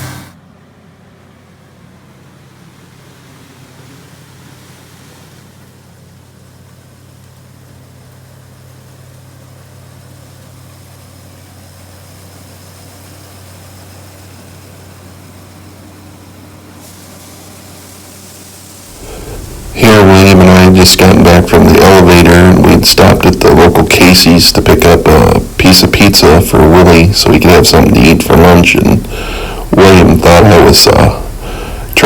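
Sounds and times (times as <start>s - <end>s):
high hiss: 0.0s - 0.4s, 8.7s - 32.0s
combine diesel engine running: 0.0s - 2.7s, 18.8s - 32.0s.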